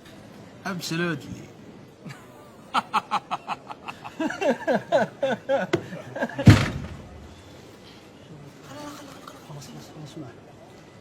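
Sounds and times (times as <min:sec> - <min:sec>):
loud thump: 0:06.4 - 0:07.5.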